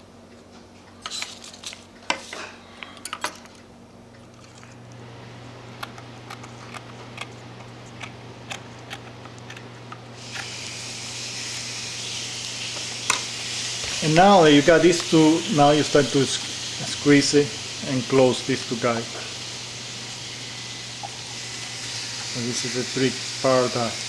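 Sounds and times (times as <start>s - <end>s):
steady low hum: 0.0s - 24.0s
small parts and paper handled: 1.0s - 3.6s, 4.2s - 4.8s
loud hiss: 10.2s - 24.0s.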